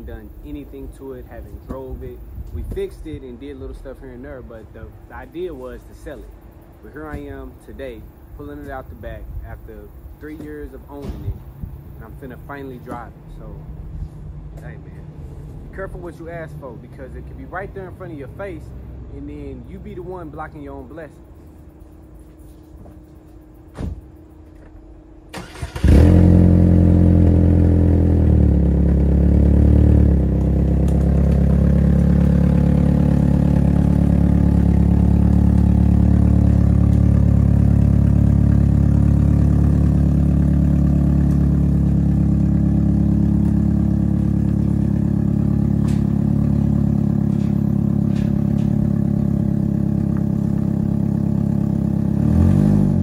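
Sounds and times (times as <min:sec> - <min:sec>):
car engine idling: 0:00.0 - 0:53.0
car engine cranking: 0:25.2 - 0:53.0.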